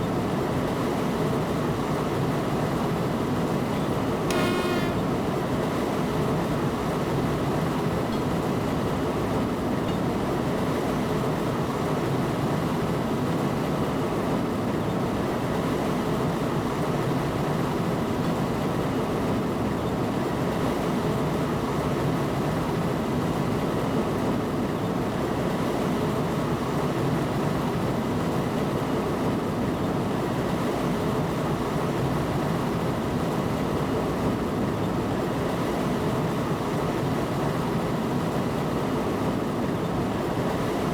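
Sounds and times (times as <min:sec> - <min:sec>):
faint whining tones: 0:04.3 - 0:05.7.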